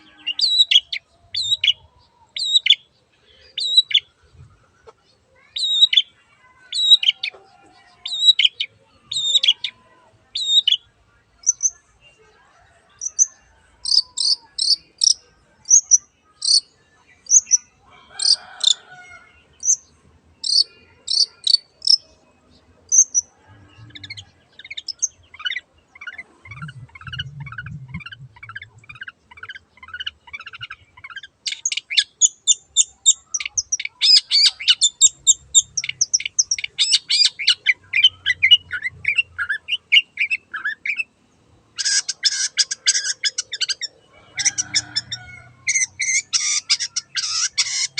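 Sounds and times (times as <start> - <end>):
shrike singing: 22.9 - 41.1.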